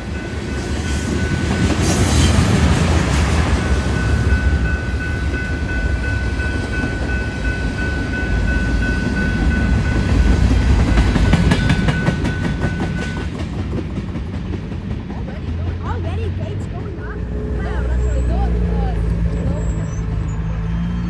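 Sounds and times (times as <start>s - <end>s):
freight train rumbling on rails: 0.0s - 21.0s.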